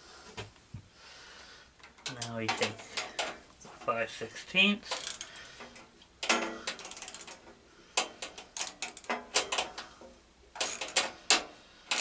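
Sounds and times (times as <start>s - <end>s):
hand ratchet clicking: 4.9s - 12.0s.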